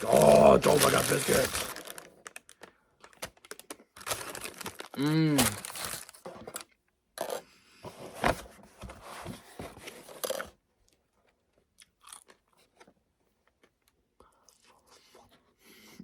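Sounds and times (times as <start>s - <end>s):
biting and chewing a biscuit: 10.1s - 15.5s.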